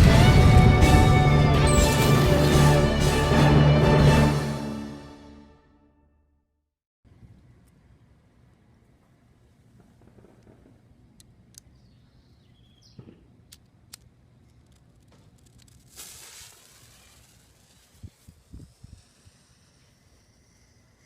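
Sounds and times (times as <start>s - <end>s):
short hiss: 15.6s - 21.0s.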